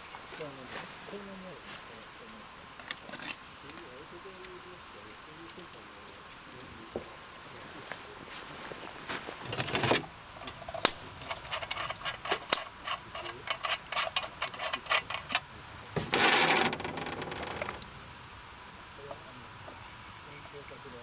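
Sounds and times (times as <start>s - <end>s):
objects clicking and knocking: 9.5s - 15.4s, 16.0s - 17.9s
rasping scrape: 9.5s - 15.4s, 16.0s - 17.8s.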